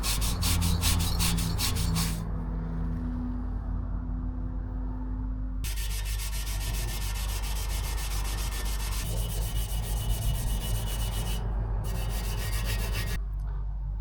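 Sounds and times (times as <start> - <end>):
abrasive pad scrubbing metal pipe: 0.0 - 2.2, 5.7 - 13.2.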